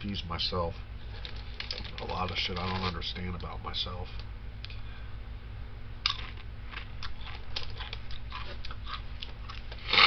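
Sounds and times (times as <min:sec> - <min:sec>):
steady low hum: 0:00.0 - 0:10.0
person chewing food: 0:06.1 - 0:10.0.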